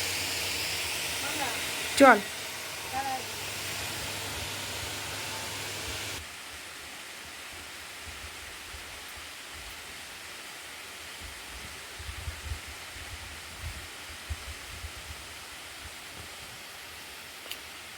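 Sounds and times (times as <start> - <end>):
waterfall rushing: 1.2 - 6.2
wind on microphone: 11.2 - 16.0.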